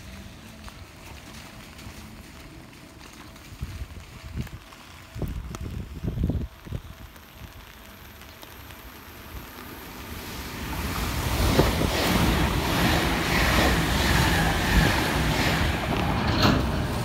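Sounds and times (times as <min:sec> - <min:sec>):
electric train rushing past: 0:09.0 - 0:17.0.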